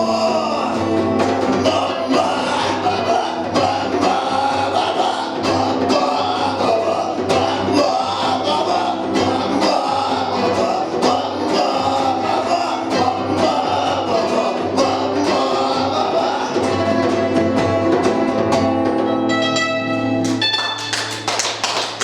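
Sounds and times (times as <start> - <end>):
drum hits: 0.0 - 15.9
punk rock band playing live: 0.0 - 19.3
guitar chord ringing: 16.8 - 21.0.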